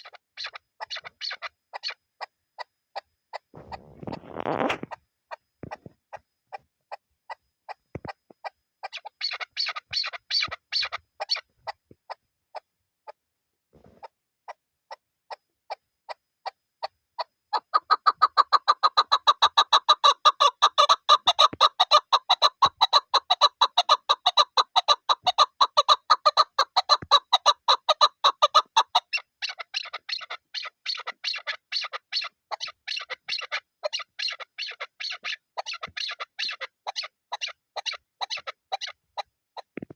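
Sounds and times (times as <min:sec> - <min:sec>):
partridge clucking calls: 0:00.0 - 0:02.3, 0:07.7 - 0:13.2, 0:17.2 - 0:39.0, 0:39.6 - 0:39.9.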